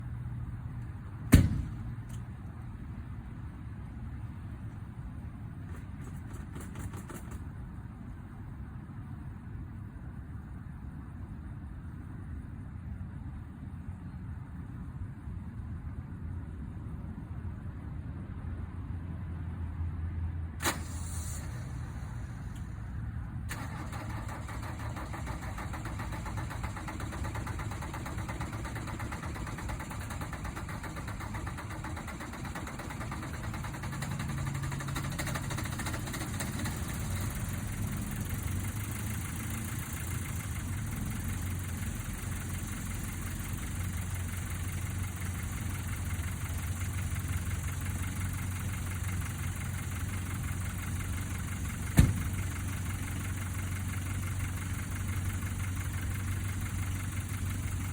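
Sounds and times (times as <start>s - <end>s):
diesel engine idling: 20.6s - 57.9s.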